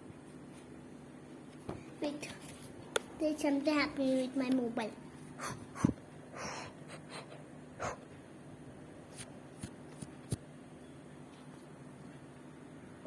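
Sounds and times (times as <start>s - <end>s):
breathy puffs: 5.4s - 8.1s.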